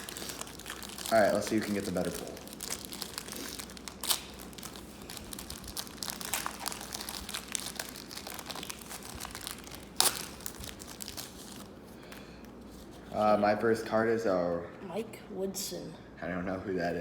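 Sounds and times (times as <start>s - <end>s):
sharp wrapper tear: 0.0s - 11.7s
card pack wrappers crinkling: 0.0s - 12.9s.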